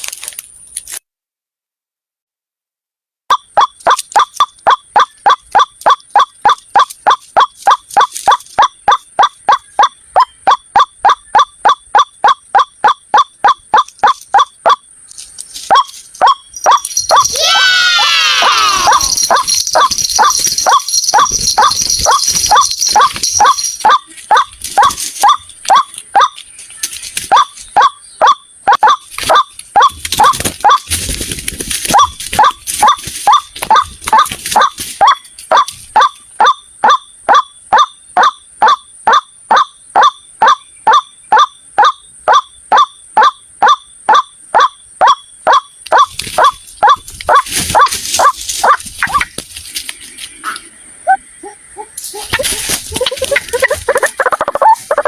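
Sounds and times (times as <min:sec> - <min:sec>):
waterhen calling hoarse notes: 0:03.3 - 0:31.0, 0:31.9 - 0:55.0
rustling noise: 0:05.8 - 0:08.6, 0:15.0 - 0:17.4, 0:18.6 - 0:27.8, 0:29.0 - 0:36.0, 0:46.0 - 0:50.7, 0:52.0 - 0:55.0.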